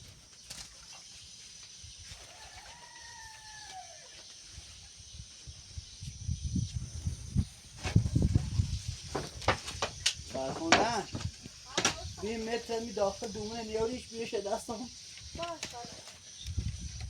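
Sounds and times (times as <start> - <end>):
rooster crowing: 2.2 - 4.2.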